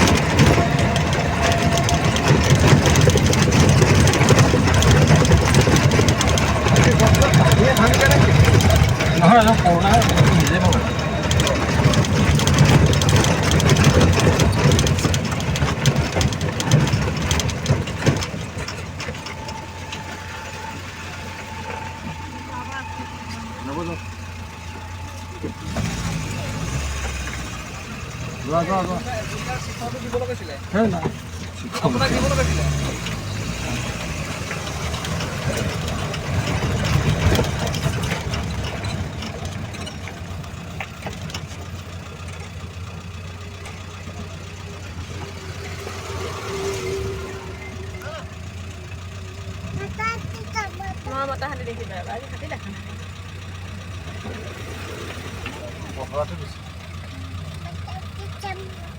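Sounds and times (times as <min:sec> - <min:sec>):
rattling knocks from vehicle body: 0:00.0 - 0:22.2
vehicle engine running: 0:00.0 - 0:58.9.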